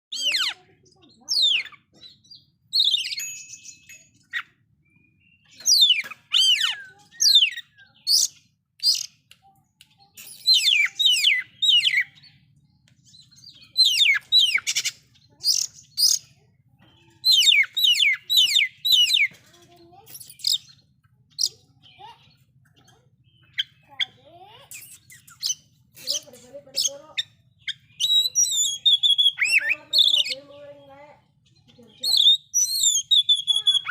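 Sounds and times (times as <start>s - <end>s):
bird singing whistled notes: 17.0s - 19.4s, 24.7s - 30.4s, 32.0s - 33.9s.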